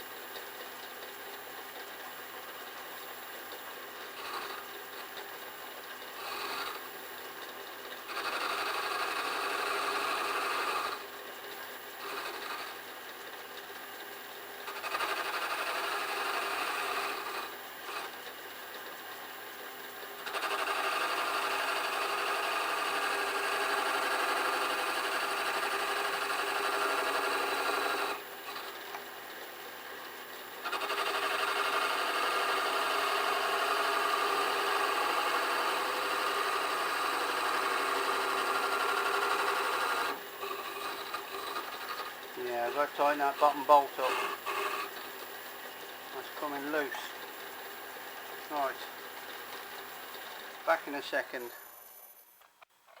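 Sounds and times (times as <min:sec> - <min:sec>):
metal lathe running: 0:03.9 - 0:06.8, 0:07.9 - 0:11.2, 0:11.8 - 0:12.8, 0:14.6 - 0:18.4, 0:20.1 - 0:29.4, 0:30.0 - 0:51.6
lathe scraping steel: 0:12.0 - 0:12.8, 0:14.7 - 0:18.2, 0:30.7 - 0:45.1.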